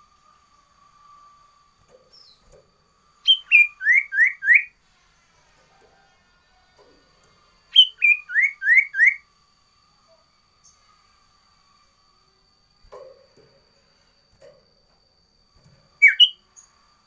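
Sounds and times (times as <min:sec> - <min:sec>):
bird whistled song: 0:03.2 - 0:04.8, 0:07.6 - 0:09.3, 0:16.0 - 0:16.8.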